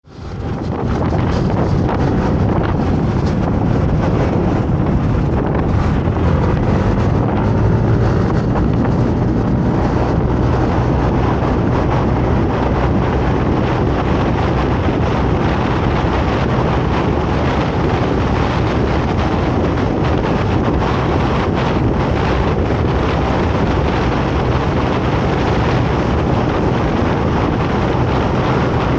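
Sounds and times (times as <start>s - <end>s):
wind rushing over microphone: 0.0s - 28.9s
motorcycle engine humming: 0.1s - 28.9s.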